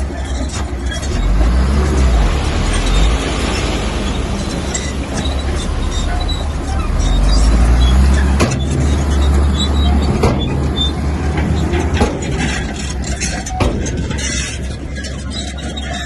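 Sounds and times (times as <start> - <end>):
bulldozer diesel engine under load: 0.0 - 16.0
sharp knocks: 10.0 - 14.6.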